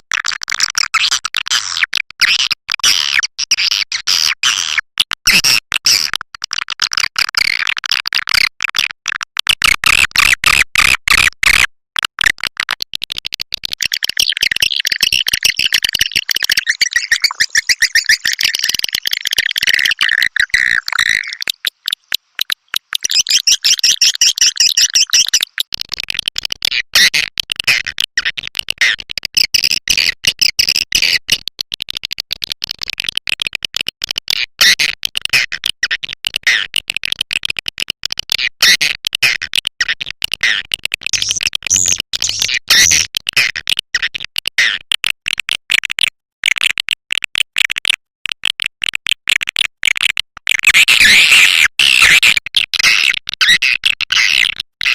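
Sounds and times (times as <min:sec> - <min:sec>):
swiftlet twittering chirps: 0:13.8 - 0:25.7, 0:41.2 - 0:43.0.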